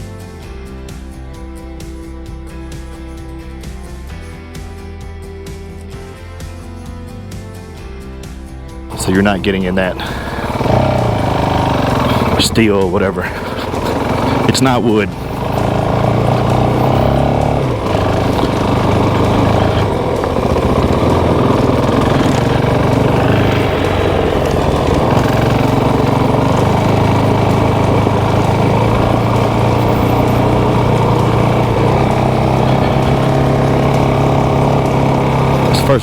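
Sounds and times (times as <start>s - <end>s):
motorcycle engine running: 8.9s - 36.0s.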